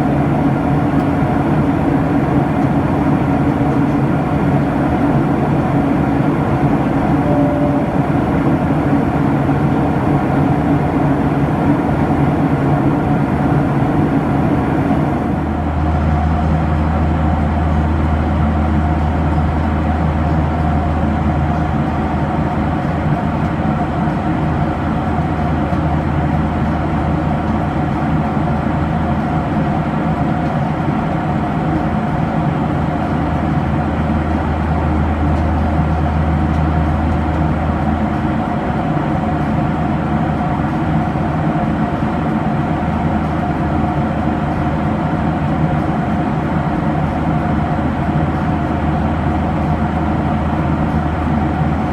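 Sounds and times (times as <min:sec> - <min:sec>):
jet engines droning: 0:00.0 - 0:51.9
deep hum: 0:06.0 - 0:09.8
steady mid-pitched tone: 0:06.5 - 0:09.5.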